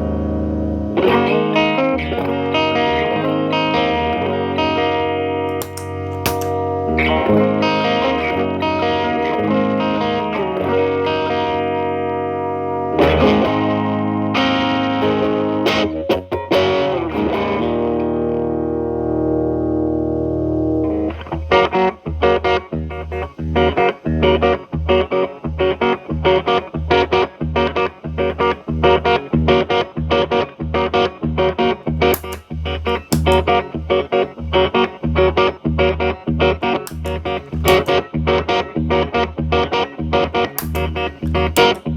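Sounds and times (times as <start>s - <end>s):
distorted electric guitar chords: 0.0s - 41.9s.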